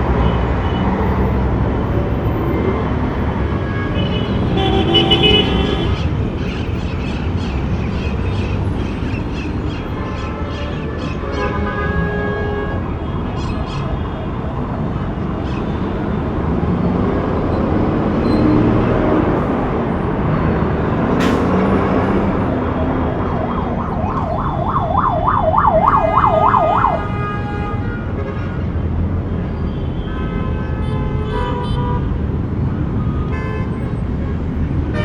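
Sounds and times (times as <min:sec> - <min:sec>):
city street traffic: 0:00.0 - 0:35.0
car horns tooting: 0:03.3 - 0:06.2, 0:29.7 - 0:32.0
siren yelping: 0:22.7 - 0:27.1.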